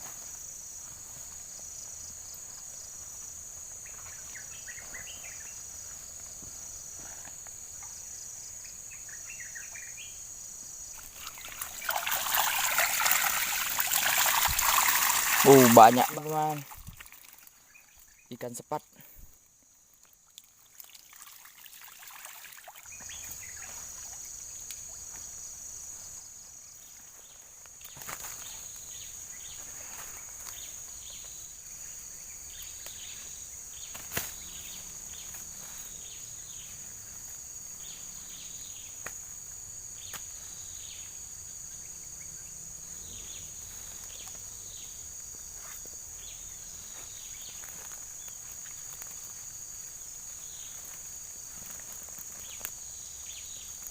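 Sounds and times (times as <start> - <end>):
high-pitched insect drone: 3.8 - 16.8.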